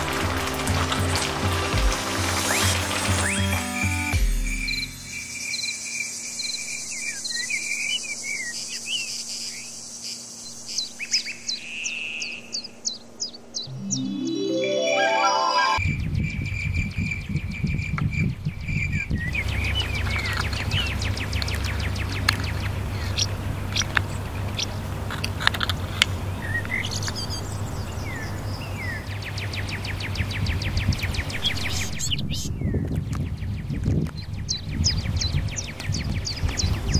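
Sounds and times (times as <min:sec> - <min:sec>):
birds chirping and trilling: 0:02.5 - 0:14.1, 0:15.8 - 0:36.9
steady low rumble: 0:15.9 - 0:36.9.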